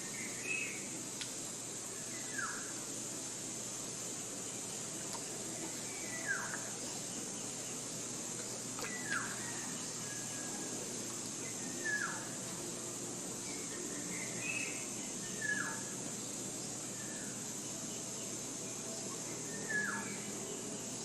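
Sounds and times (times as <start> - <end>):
forest ambience hiss: 0.0 - 21.0.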